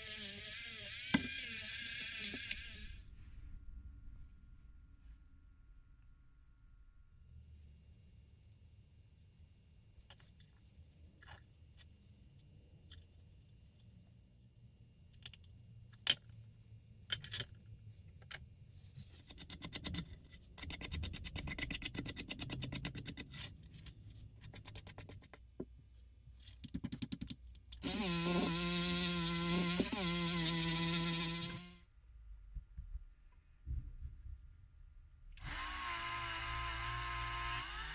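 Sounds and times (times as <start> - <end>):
small power tool motor running: 0.0 - 3.0, 27.8 - 31.8, 35.4 - 37.9
clicks and taps: 26.5 - 27.6.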